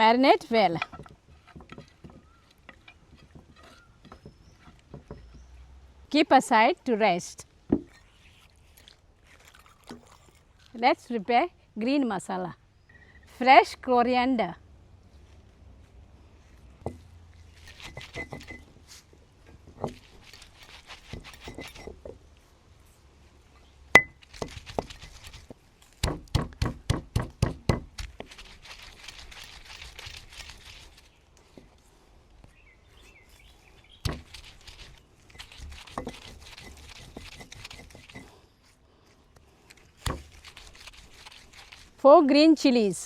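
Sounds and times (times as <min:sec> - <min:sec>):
leafy herbs rustling: 0:17.3 - 0:21.8, 0:24.2 - 0:26.0, 0:28.0 - 0:32.2, 0:32.8 - 0:43.0
knife chopping on a board: 0:26.0 - 0:28.1.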